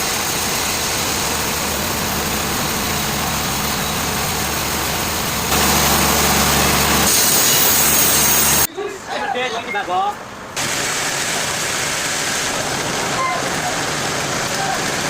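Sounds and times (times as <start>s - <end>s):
heavy machine engine running: 0.0s - 8.7s
loud hiss: 0.0s - 8.7s, 10.6s - 15.0s.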